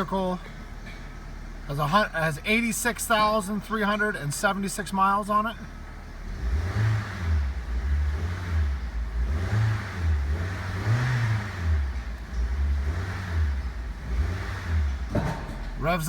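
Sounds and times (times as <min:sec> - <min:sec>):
car engine revving: 0:05.6 - 0:16.0.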